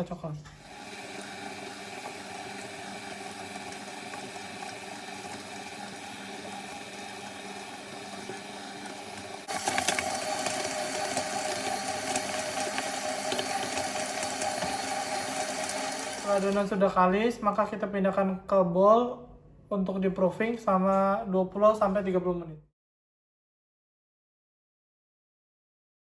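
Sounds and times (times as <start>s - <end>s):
electric mixer kneading dough: 0.6s - 16.8s.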